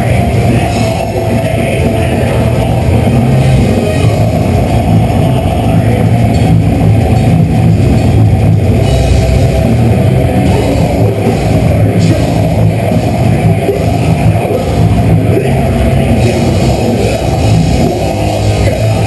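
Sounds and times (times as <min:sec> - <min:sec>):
distorted guitars: 0:00.0 - 0:19.0
drums: 0:00.0 - 0:19.0.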